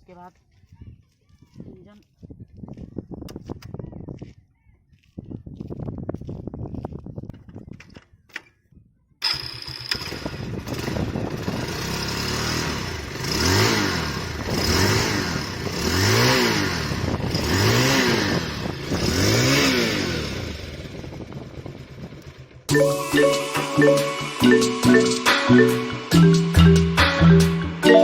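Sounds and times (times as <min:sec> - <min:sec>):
motorcycle engine idling and revving: 0:09.2 - 0:22.7.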